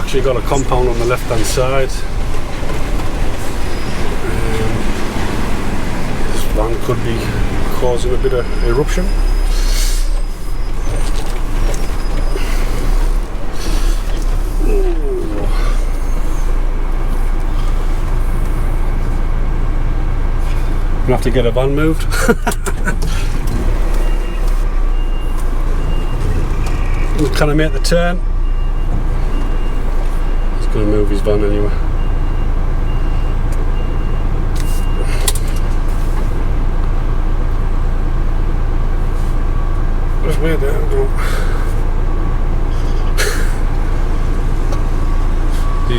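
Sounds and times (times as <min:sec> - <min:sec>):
reversing beeper: 0:00.0 - 0:18.9, 0:23.6 - 0:35.8, 0:44.2 - 0:45.9
lorry diesel engine rumbling: 0:00.0 - 0:45.9.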